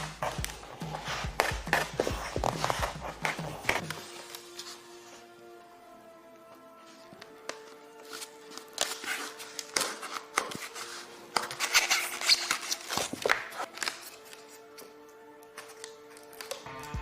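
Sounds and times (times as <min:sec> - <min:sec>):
foam board scraping and squeaking: 0:00.0 - 0:05.3, 0:06.8 - 0:14.6
faint background music: 0:00.0 - 0:17.0.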